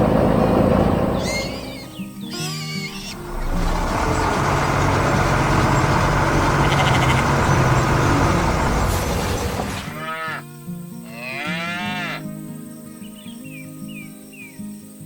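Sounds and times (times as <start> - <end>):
heavy vehicle engine rushing: 0.0 - 2.2, 3.1 - 10.0
cow lowing: 6.4 - 8.8.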